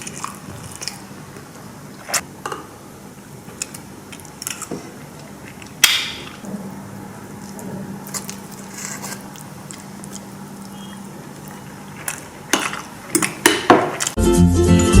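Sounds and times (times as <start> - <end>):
background music: 14.2 - 15.0.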